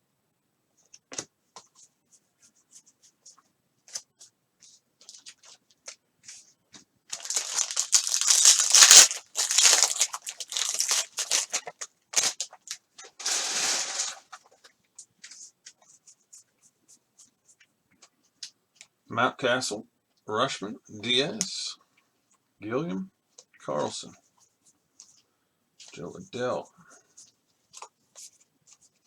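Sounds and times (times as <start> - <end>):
wrapper tearing and crinkling: 7.1 - 14.4.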